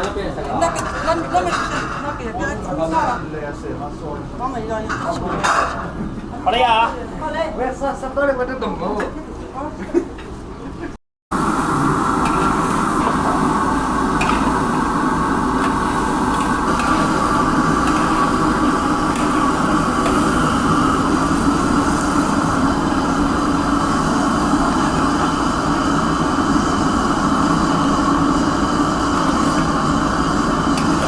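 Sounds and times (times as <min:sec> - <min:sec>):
loud machine fan running: 0:11.3 - 0:31.0.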